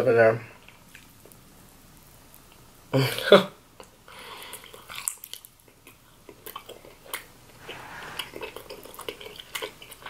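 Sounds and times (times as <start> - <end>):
soft mouth clicks chewing: 3.8 - 7.3.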